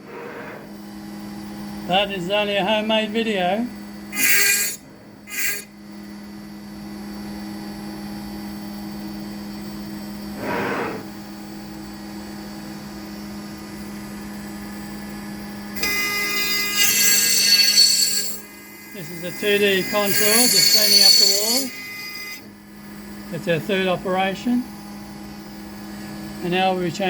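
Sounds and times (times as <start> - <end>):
router spindle humming: 0.0 - 27.0
router bit cutting wood: 1.9 - 5.8, 15.8 - 22.5
short harsh bursts: 4.1 - 5.7, 10.4 - 11.1.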